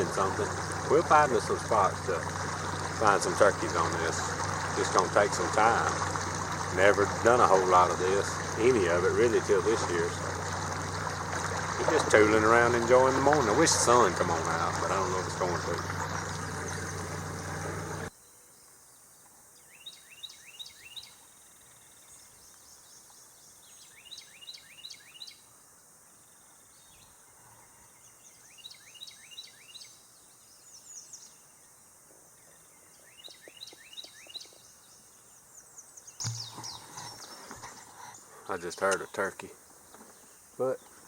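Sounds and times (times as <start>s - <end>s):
boat motor running: 0.0s - 18.1s, 36.2s - 38.2s
faint outdoor background: 0.0s - 41.0s
songbird singing: 0.0s - 41.0s.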